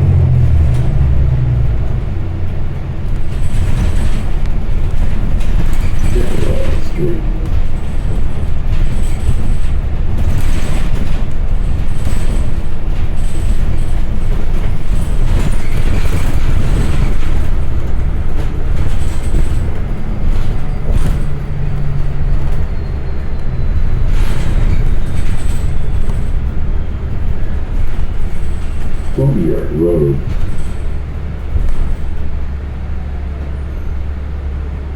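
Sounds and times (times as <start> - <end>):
bus engine and road rumble: 0.0 - 34.9
body rattles and knocks: 2.8 - 22.7.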